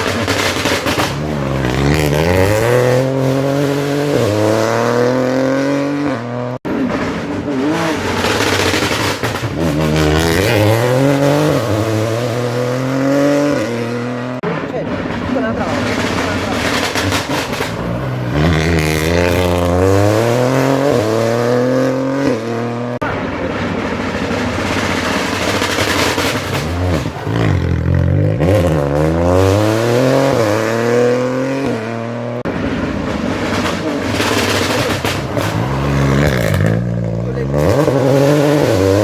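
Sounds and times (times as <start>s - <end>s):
rally cars accelerating hard: 0.0s - 39.0s.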